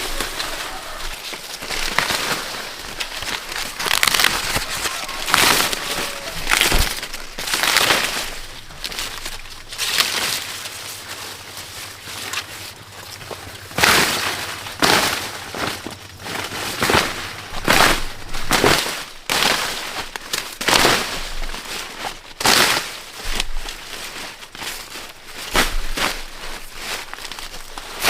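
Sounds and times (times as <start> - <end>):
dry corn leaves rustling: 0.0 - 28.0.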